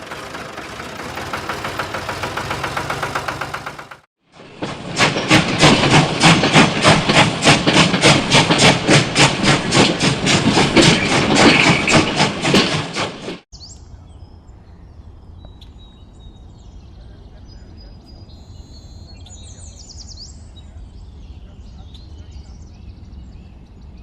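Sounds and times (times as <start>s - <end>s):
machine rhythmic clatter: 0.0s - 4.1s, 4.9s - 13.3s
bird chirps: 13.6s - 24.0s.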